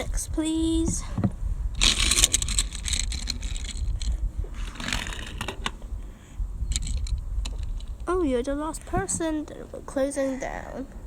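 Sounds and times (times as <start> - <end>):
plastic clatters: 1.8 - 5.8
toy car rolling on plastic: 1.8 - 5.8.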